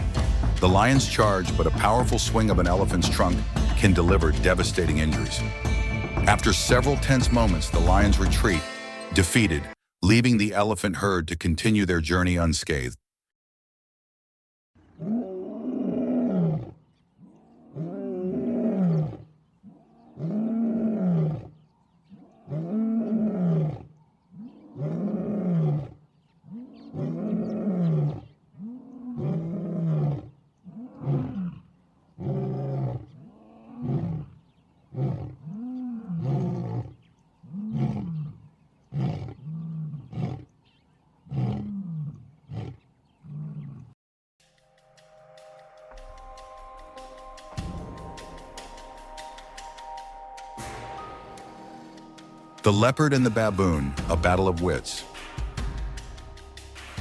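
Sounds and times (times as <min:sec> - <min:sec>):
lion roaring: 0:14.8 - 0:40.5, 0:41.2 - 0:44.0
lion grunting: 0:22.2 - 0:34.4, 0:35.0 - 0:40.5, 0:41.3 - 0:43.9.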